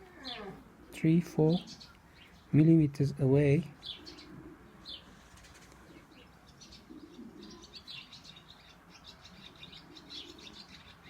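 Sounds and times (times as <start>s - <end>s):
pigeon cooing: 0.0s - 1.8s, 3.8s - 8.2s, 9.4s - 11.0s
small birds chirping: 0.0s - 11.0s.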